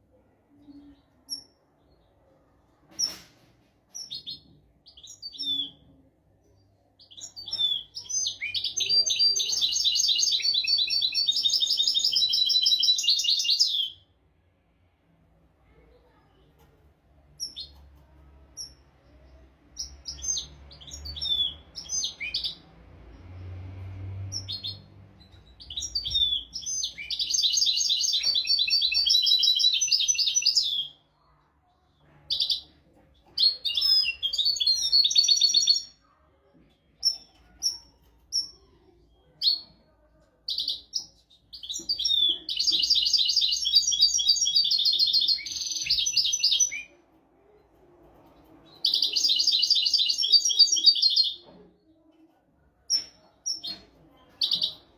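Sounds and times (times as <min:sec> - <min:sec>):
finch twittering and trilling: 0:24.3 - 0:31.0, 0:40.5 - 0:46.9, 0:48.7 - 0:51.4.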